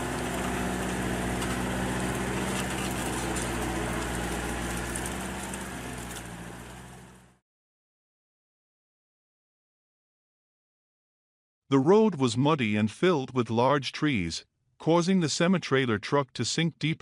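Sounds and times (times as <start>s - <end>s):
tractor diesel engine running: 0.0s - 7.4s.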